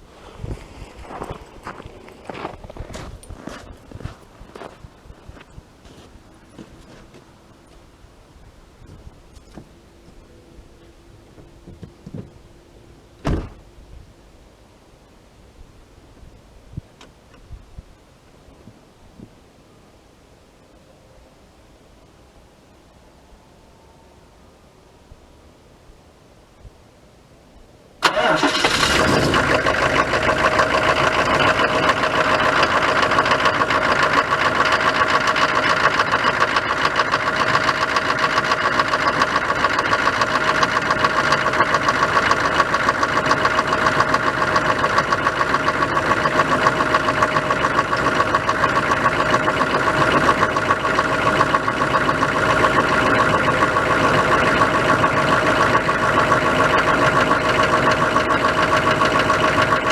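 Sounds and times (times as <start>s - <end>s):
diesel engine starting and idling: 28.0s - 59.9s.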